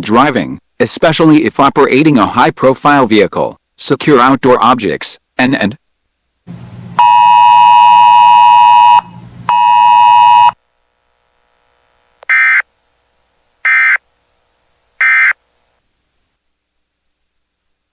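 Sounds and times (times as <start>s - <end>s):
harsh buzzing alert tone: 7.0s - 10.6s.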